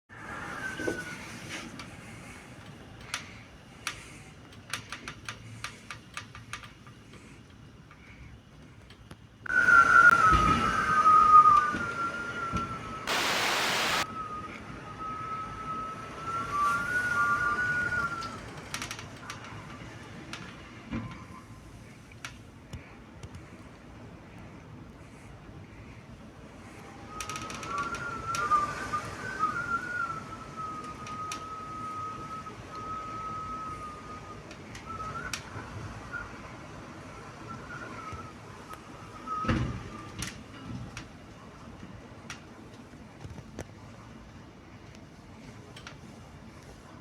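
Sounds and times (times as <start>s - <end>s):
scattered clicks and rattles: 2.6s - 8.0s
gale-force wind whistling: 9.5s - 18.6s, 26.2s - 40.1s
wind hiss on microphone: 13.0s - 14.0s.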